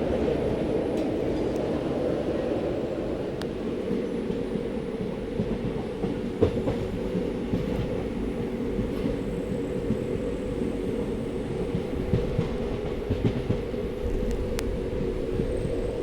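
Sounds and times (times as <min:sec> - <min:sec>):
train rumbling on rails: 0:00.0 - 0:16.0
train knocks: 0:03.8 - 0:10.2, 0:10.8 - 0:16.0.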